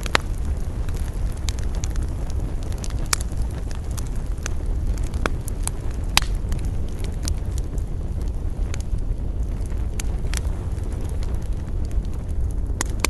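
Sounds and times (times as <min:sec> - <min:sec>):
campfire crackling and popping: 0:00.0 - 0:13.0
low rumble of wind: 0:00.0 - 0:13.0.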